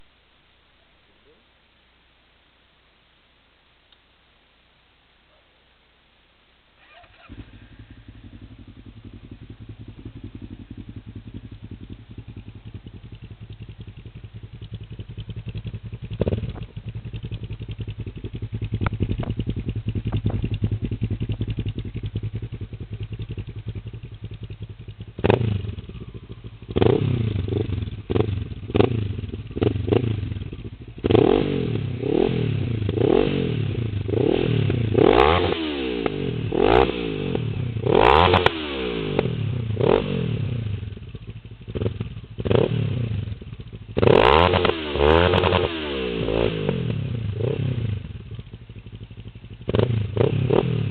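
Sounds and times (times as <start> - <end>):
motorcycle engine idling: 6.8 - 35.2, 39.0 - 44.6, 46.2 - 50.9
motorcycle throttle blips: 6.8 - 50.9.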